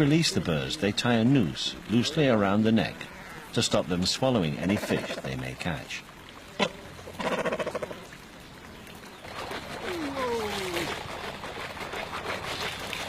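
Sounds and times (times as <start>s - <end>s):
water splashing and trickling: 0.0s - 13.0s
fishermen calling in falling cries: 2.9s - 3.6s, 9.7s - 11.2s.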